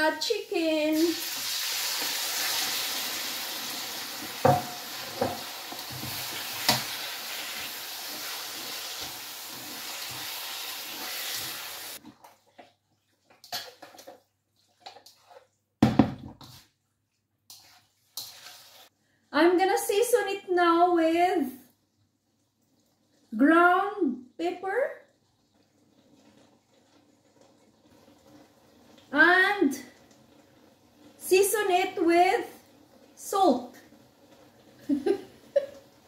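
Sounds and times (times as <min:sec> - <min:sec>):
chicken sizzling in hot oil: 0:00.0 - 0:12.0, 0:17.5 - 0:18.9, 0:24.4 - 0:36.0
stirring scrapes: 0:05.1 - 0:15.7, 0:16.3 - 0:19.0.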